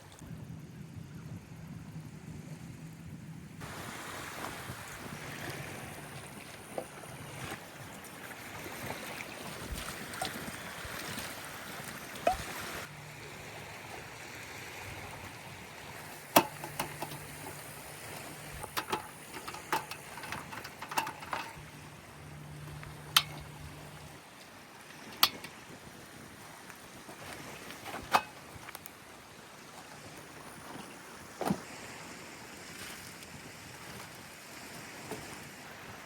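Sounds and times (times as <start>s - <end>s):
light wind: 0.0s - 36.0s
water washing: 3.6s - 26.1s
sharp clicks and knocks: 16.2s - 17.7s, 18.5s - 21.7s, 22.9s - 23.6s.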